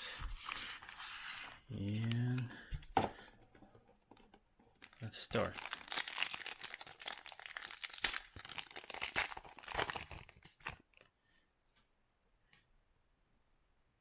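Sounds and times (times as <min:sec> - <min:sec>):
plastic wrapper tearing and crinkling: 0:04.8 - 0:11.1.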